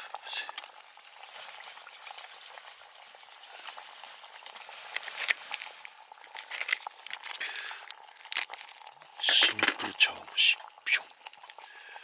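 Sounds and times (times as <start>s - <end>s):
campfire crackling: 0.0s - 12.0s
food sizzling in a pan: 0.0s - 12.0s.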